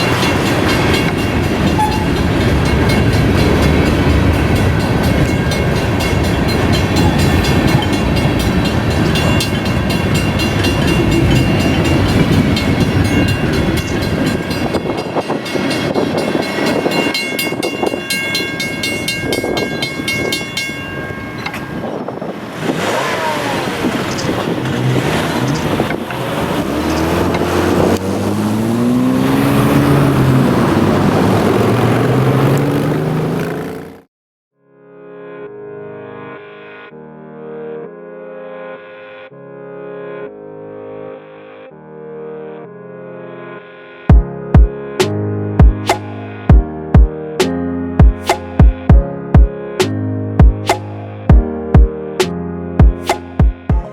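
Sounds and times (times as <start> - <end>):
vehicle engines revving: 0.0 - 14.9, 22.3 - 34.1
crossing bell ringing rapidly: 0.0 - 22.4
freight train rolling: 0.0 - 34.0.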